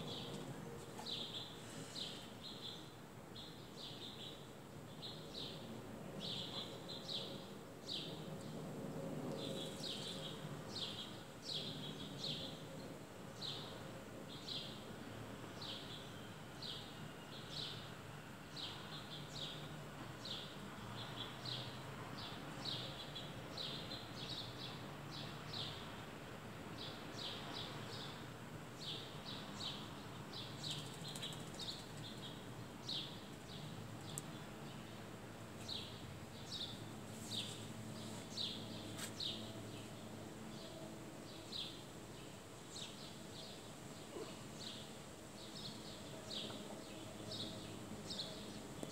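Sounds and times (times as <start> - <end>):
small bird chirping: 30.4 - 32.4.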